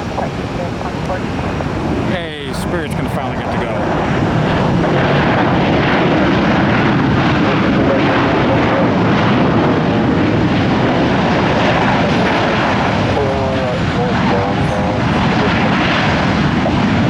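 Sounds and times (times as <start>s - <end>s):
airliner engine noise: 0.0s - 17.0s.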